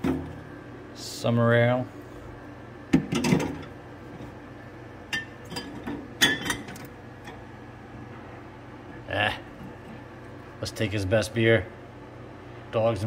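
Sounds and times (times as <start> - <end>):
bottles clinking in a cooler: 3.0 - 3.7, 5.1 - 6.8.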